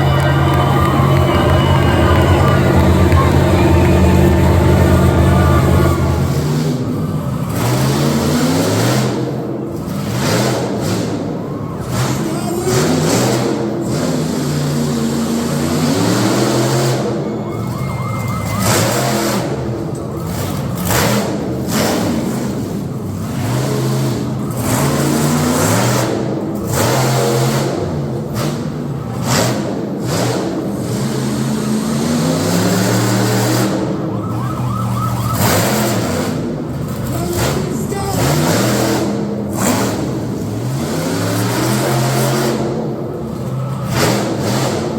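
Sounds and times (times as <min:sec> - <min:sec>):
siren-like whoop: 0:00.0 - 0:06.5, 0:17.2 - 0:19.1, 0:34.0 - 0:35.7
high whine: 0:00.0 - 0:06.9
truck engine revving hard: 0:00.0 - 0:44.9.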